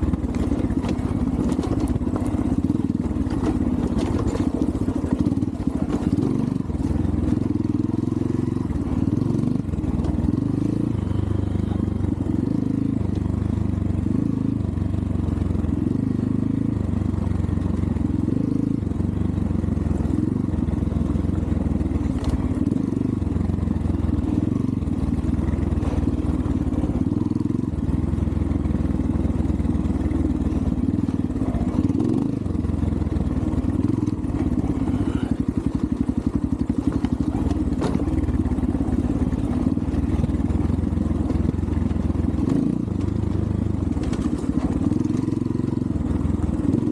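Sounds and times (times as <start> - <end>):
dirt bike engine revving: 33.4 - 42.8.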